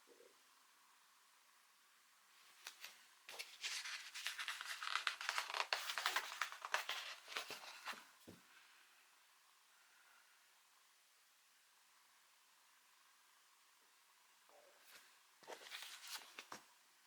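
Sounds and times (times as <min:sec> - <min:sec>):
paper pages rustling: 0:02.5 - 0:08.3, 0:14.9 - 0:16.7.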